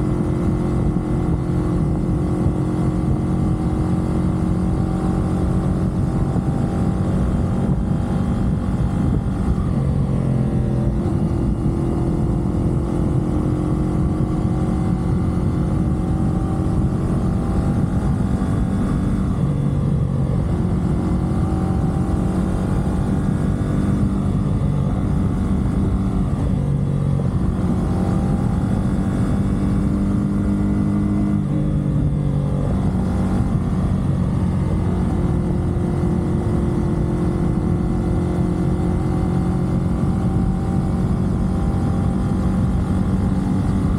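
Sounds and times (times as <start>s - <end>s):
motorcycle engine cruising: 0.0s - 43.9s
wind and tyre rush: 0.0s - 43.9s.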